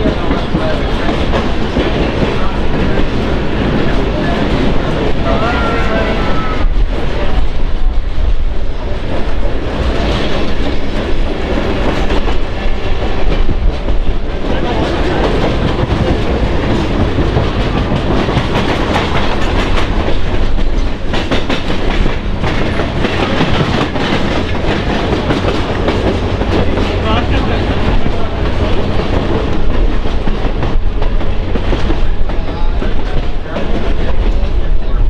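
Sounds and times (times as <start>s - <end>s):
train wheels rumbling: 0.0s - 35.0s
wheels clicking over rail joints: 9.3s - 34.6s.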